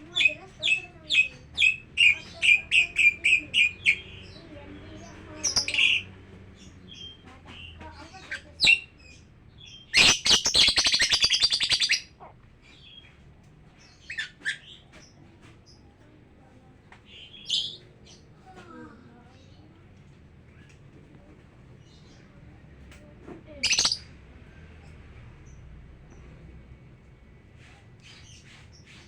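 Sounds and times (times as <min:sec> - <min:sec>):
lovebirds chirping: 0:00.0 - 0:22.8, 0:23.5 - 0:26.4
fast bird chattering burst: 0:09.9 - 0:12.0, 0:23.6 - 0:24.1.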